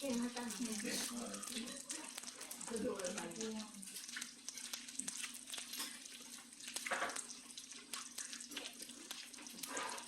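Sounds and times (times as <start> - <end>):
utensils and dishes clattering: 5.7 - 6.1.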